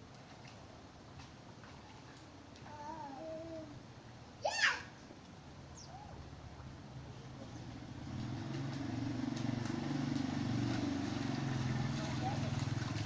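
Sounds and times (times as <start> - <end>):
vehicle engine running: 6.3 - 13.0.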